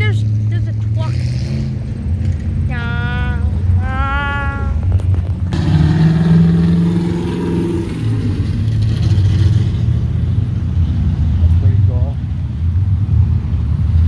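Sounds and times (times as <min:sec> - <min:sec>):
cars driving past: 0:00.0 - 0:14.0
loud car engine: 0:00.0 - 0:14.0.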